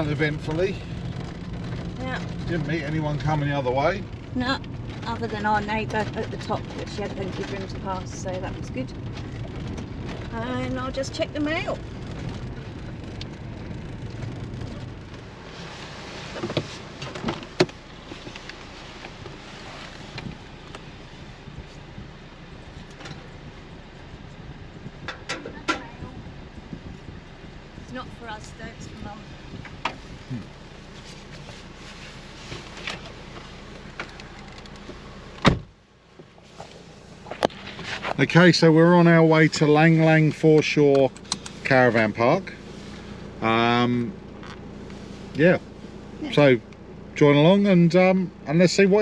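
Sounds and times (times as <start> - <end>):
vehicle engine idling: 0.0 - 49.0
car door shutting: 15.6 - 20.9, 32.5 - 38.2, 40.4 - 41.8.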